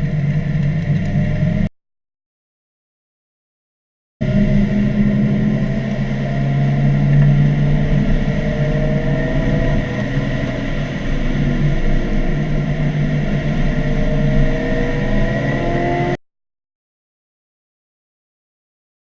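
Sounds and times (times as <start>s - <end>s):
road and wind noise: 0.0s - 1.7s, 4.2s - 16.2s.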